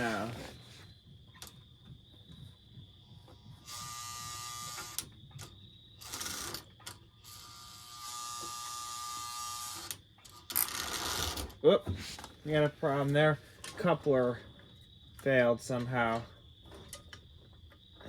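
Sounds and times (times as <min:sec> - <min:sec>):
toy train motor buzzing: 0:03.5 - 0:05.1, 0:06.0 - 0:11.5.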